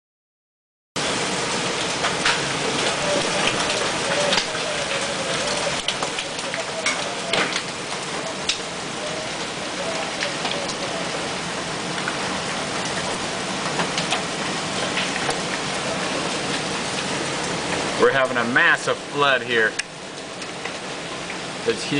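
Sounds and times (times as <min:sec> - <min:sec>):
heavy rain: 0:01.0 - 0:21.9
hailstones striking hard surfaces: 0:01.2 - 0:10.9, 0:11.9 - 0:18.0.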